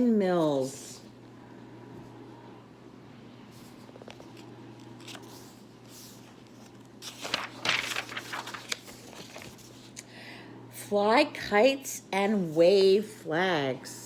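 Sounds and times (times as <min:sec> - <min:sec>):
paper page rustling: 0:03.5 - 0:10.0.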